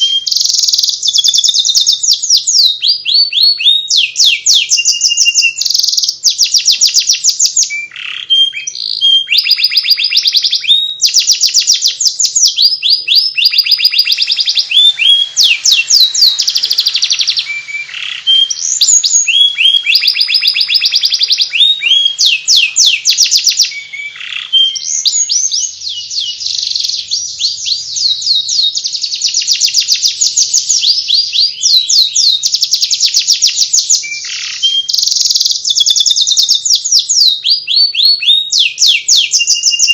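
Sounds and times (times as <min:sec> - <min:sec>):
canary singing in twittering trills: 0:00.0 - 0:39.9.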